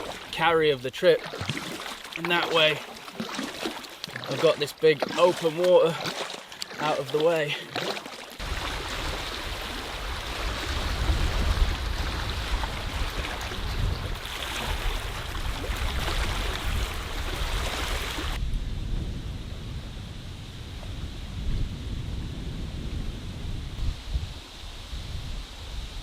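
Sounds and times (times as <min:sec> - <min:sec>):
waves on lake water: 0:00.0 - 0:23.0
wind buffeting microphone: 0:08.4 - 0:26.0.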